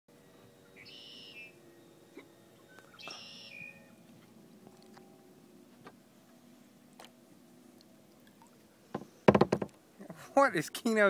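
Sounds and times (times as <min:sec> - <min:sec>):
songbird buzzy call: 0:00.6 - 0:04.1
faint knocks: 0:08.9 - 0:09.8.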